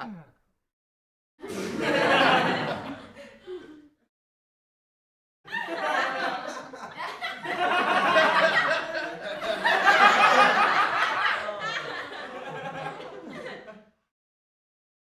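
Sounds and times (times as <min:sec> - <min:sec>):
crowd laughing: 0:01.4 - 0:03.9, 0:05.5 - 0:14.0.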